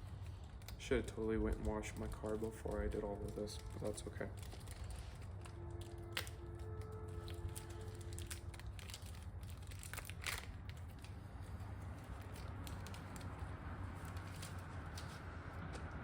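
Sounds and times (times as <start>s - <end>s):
crinkling and clicking handling: 0.0s - 16.0s.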